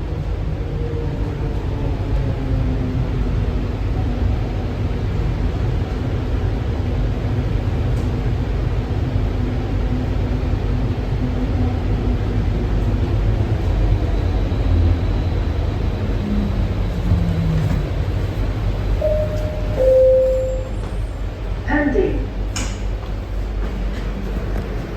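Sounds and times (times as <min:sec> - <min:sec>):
train car rumble and motor hum: 0:00.0 - 0:24.9
chime tone: 0:19.0 - 0:20.9.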